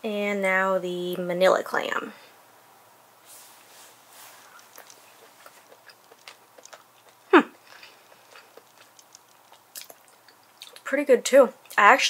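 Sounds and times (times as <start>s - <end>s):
soft chewing: 3.7s - 11.0s
mouth clicks: 4.6s - 10.9s.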